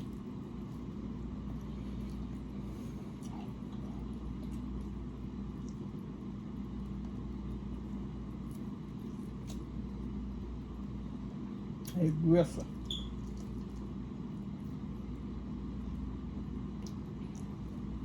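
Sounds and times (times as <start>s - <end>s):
low background hum: 0.0s - 18.0s
faint eating clicks: 1.5s - 9.7s, 12.6s - 14.5s, 16.7s - 17.8s.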